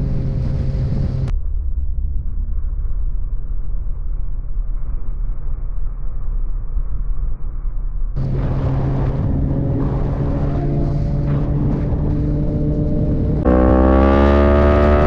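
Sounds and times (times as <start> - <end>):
motorcycle engine running: 0.0 - 1.3, 8.2 - 15.0
muffled motorcycle engine and wind: 0.0 - 15.0.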